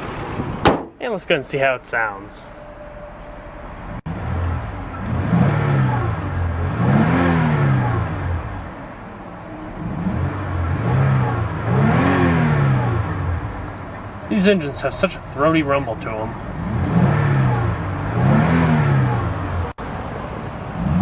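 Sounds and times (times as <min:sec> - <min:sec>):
car engine revving: 0:04.0 - 0:19.9, 0:20.6 - 0:21.0.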